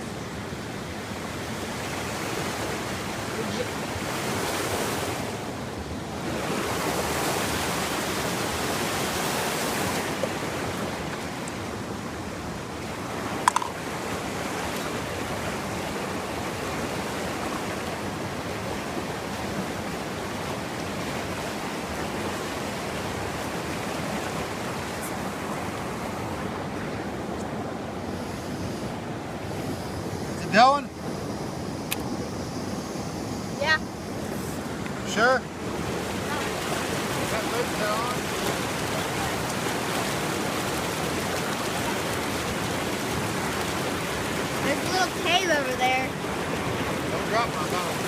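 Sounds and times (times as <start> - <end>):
creek water rushing: 0.0 - 48.0.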